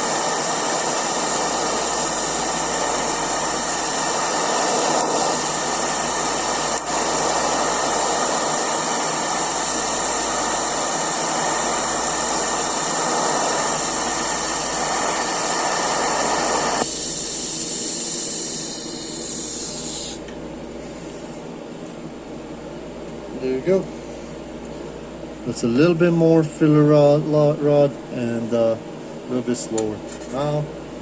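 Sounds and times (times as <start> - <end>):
welding arc hissing: 0.0 - 20.3.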